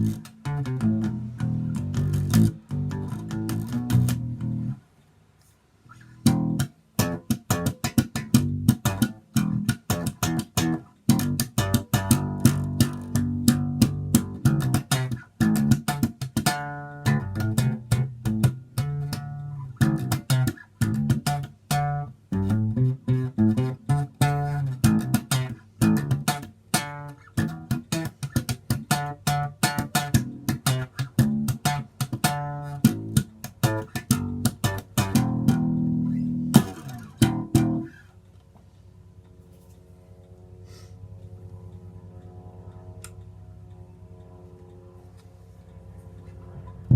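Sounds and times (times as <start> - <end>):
electric bass plucked notes: 0.0 - 4.8, 6.1 - 38.0
faint steady hum: 0.0 - 46.9.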